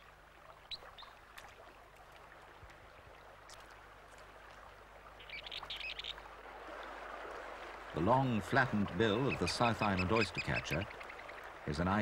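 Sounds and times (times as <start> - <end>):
bird chirping: 5.2 - 6.2
river water rushing: 6.1 - 12.0.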